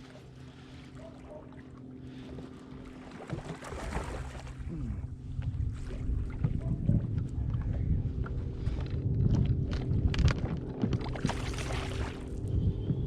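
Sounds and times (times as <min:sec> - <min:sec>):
boat hum: 0:00.0 - 0:13.0
water splashing: 0:00.1 - 0:05.1, 0:09.6 - 0:12.4
rumbling knocks on boat: 0:05.3 - 0:13.0.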